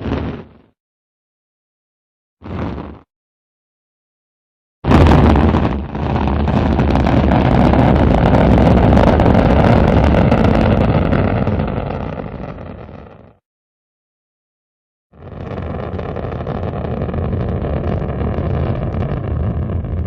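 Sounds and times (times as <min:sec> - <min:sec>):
rocket engines firing: 0:15.8 - 0:20.0.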